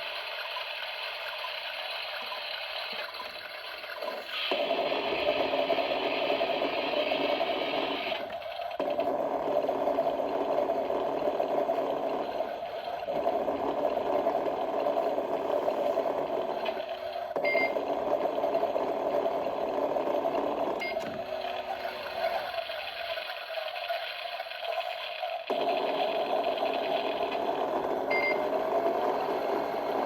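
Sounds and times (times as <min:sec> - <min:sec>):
short electronic beeps: 0:17.4 - 0:17.8.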